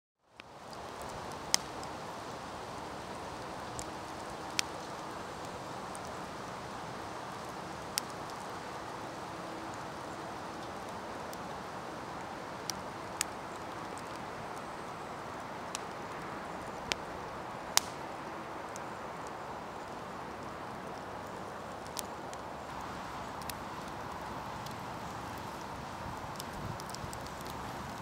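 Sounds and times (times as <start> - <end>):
campfire hissing: 0.4 - 28.0
crackling wood pops: 0.8 - 1.8, 3.7 - 5.0, 17.7 - 18.0, 21.7 - 28.0.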